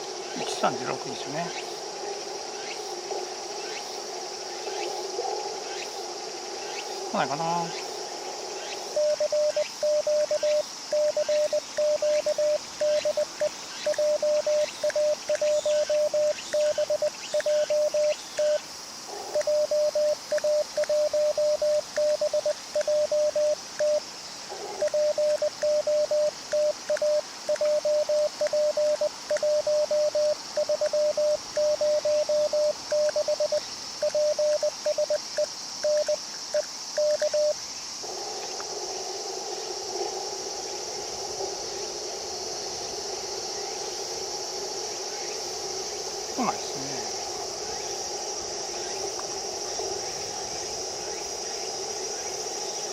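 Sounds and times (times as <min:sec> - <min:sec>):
morse code tone beeping: 0:09.0 - 0:18.6, 0:19.4 - 0:24.0, 0:24.8 - 0:35.2, 0:37.0 - 0:37.5.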